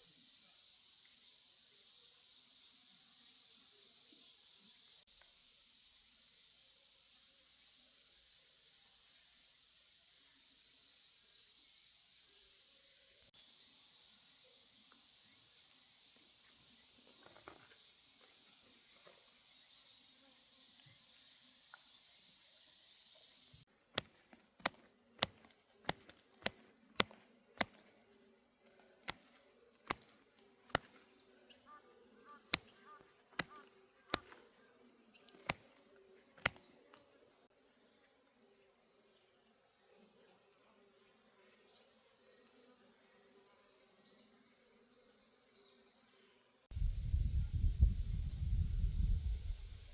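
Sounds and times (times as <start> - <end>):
insects chirping: 0.1 - 37.5
sharp clicks: 24.0 - 28.1, 28.7 - 31.1, 32.5 - 32.8, 33.4 - 34.5, 35.3 - 35.8, 36.4 - 36.7.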